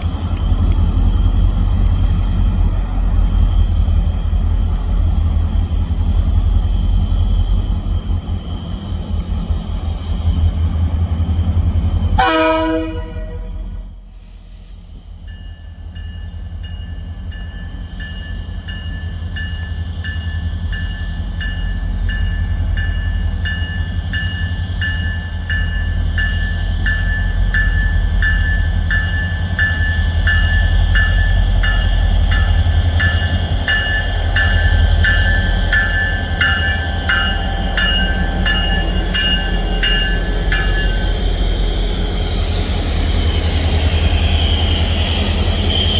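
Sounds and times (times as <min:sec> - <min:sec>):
train rumbling past: 0:00.0 - 0:45.9
railroad crossing bell ringing: 0:15.2 - 0:42.1.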